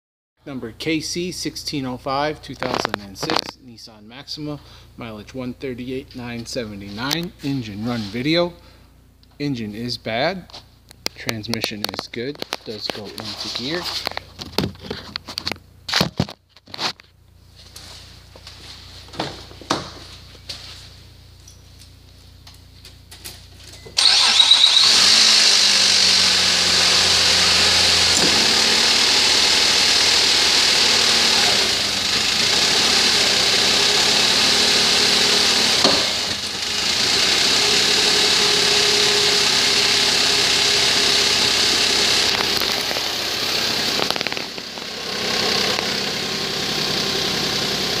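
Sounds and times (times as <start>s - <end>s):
car engine cranking and running: 2.6s - 3.5s, 21.8s - 48.0s.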